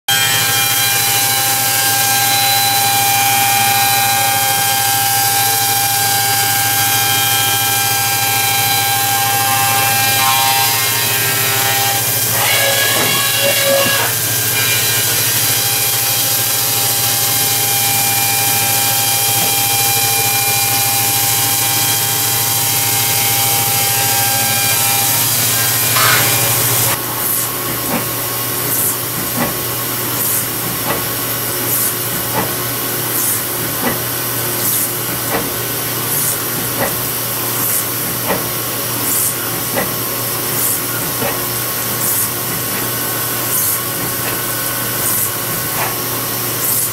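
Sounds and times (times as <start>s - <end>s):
milling machine cutting: 0.1s - 46.9s
hiss: 23.7s - 46.9s.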